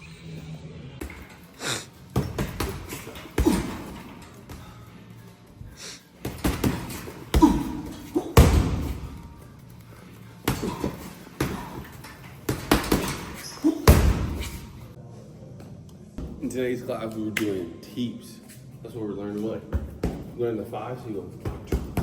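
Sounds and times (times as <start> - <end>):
kicks thudding on a pad: 6.3 - 9.1, 12.5 - 14.6.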